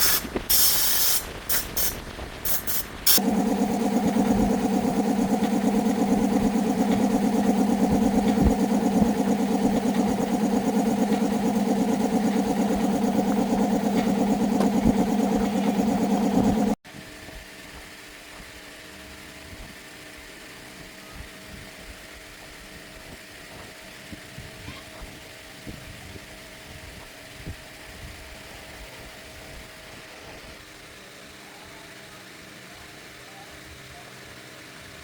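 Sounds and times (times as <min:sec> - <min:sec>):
faint steady hum: 0:03.1 - 0:16.8
motorbike engine idling: 0:03.2 - 0:16.8.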